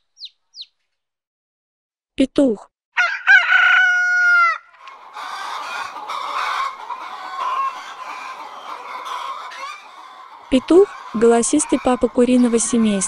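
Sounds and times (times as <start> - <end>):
rooster crowing: 3.0 - 13.0
chickens clucking: 4.7 - 13.0.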